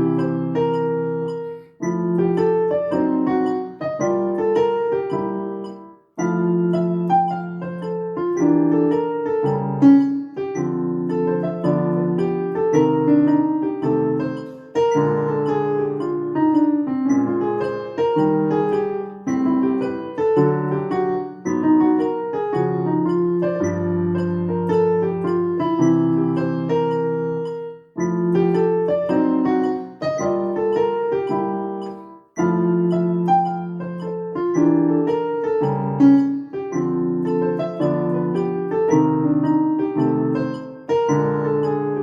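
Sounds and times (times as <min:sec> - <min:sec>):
jazz blues piano: 0:00.0 - 0:42.0
metronome beeping: 0:00.0 - 0:42.0.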